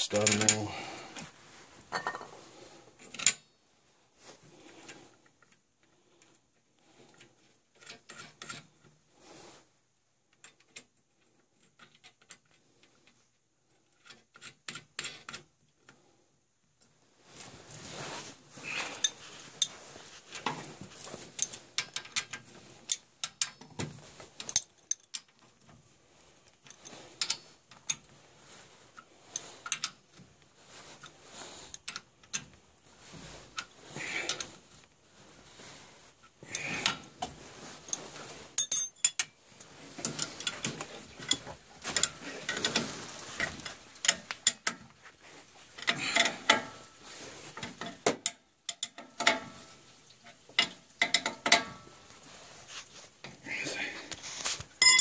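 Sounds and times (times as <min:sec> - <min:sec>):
metal tools clinking on pipe fittings: 0:00.0 - 0:00.8, 0:18.8 - 0:19.8, 0:24.4 - 0:25.4, 0:26.5 - 0:28.1, 0:29.0 - 0:30.0, 0:37.8 - 0:39.4, 0:40.0 - 0:44.8, 0:45.8 - 0:46.9, 0:47.6 - 0:51.9, 0:54.8 - 0:55.0.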